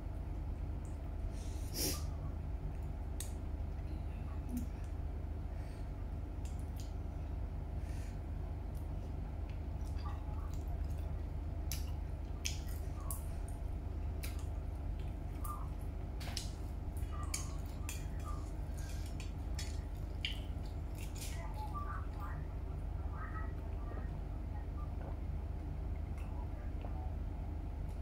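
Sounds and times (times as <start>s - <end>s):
steady low hum: 0.0s - 28.0s
wet chewing: 8.6s - 22.4s.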